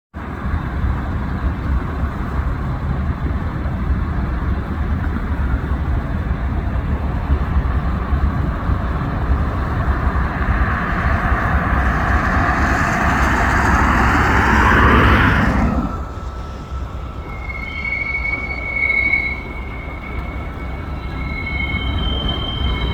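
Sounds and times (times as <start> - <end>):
airliner cabin engine rumble: 0.2 - 22.9
roar of landing aircraft: 6.7 - 22.9.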